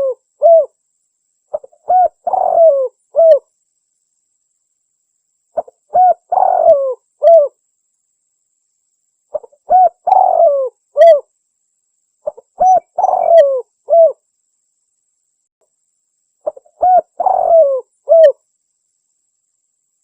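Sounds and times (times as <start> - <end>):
dove cooing: 0.0 - 0.7, 1.5 - 3.4, 5.6 - 7.6, 9.3 - 11.3, 12.2 - 14.2, 16.4 - 18.4.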